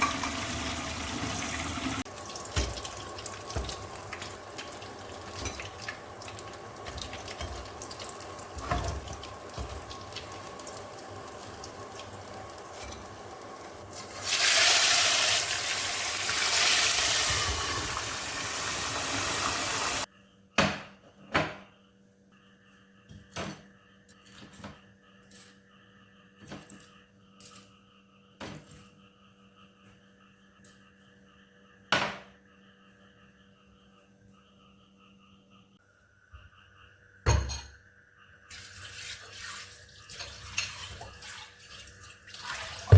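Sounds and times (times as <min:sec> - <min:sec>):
water running hard: 0:00.0 - 0:20.1
dishes clinking: 0:02.4 - 0:06.0, 0:06.8 - 0:08.0, 0:37.3 - 0:37.8.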